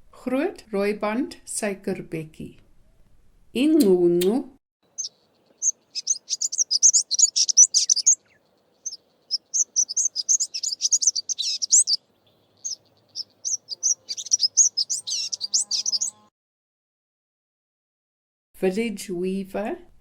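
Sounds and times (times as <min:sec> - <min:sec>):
bird twittering song: 0:04.9 - 0:16.3.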